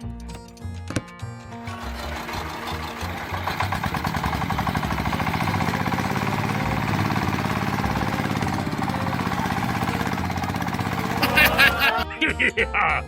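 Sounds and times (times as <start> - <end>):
small engine chugging: 1.6 - 12.0.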